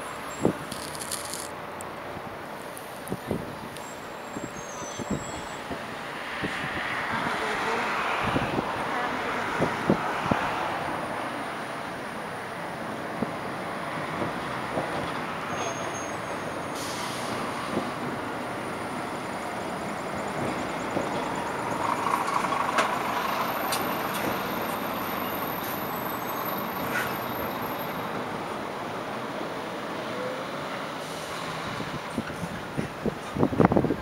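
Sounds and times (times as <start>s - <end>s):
wheel screech: 0.0s - 1.5s, 3.8s - 5.7s, 15.5s - 17.3s
train rumbling over tracks: 0.0s - 34.0s
sharp clicks: 0.7s - 1.9s.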